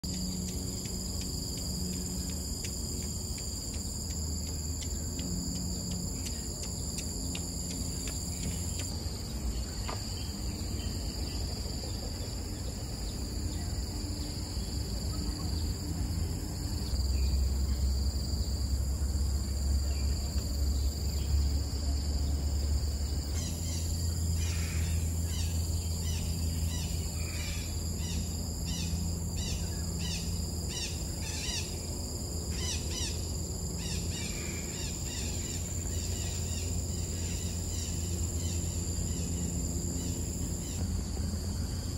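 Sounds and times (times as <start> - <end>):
crickets droning: 0.0 - 41.9.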